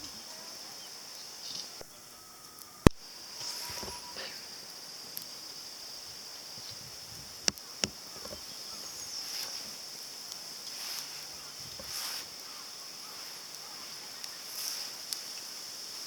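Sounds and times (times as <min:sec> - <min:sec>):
high-pitched insect chorus: 0:00.0 - 0:16.0
sharp snaps: 0:07.4 - 0:16.0.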